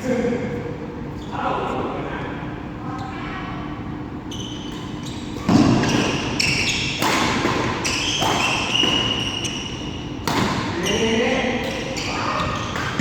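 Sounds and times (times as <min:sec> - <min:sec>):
shoes squeaking on court floor: 0:04.3 - 0:13.0
racket striking shuttlecock: 0:07.0 - 0:09.2, 0:10.2 - 0:10.8, 0:12.7 - 0:13.0.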